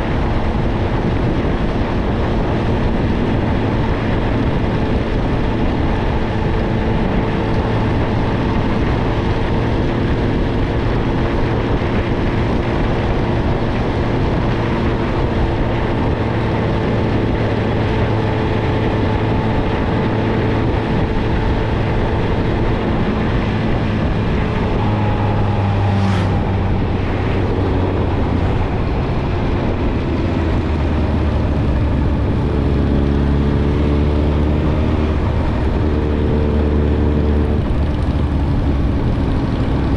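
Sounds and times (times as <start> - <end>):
motorcycle engine: 0.0 - 39.9
wind rush: 0.0 - 39.9.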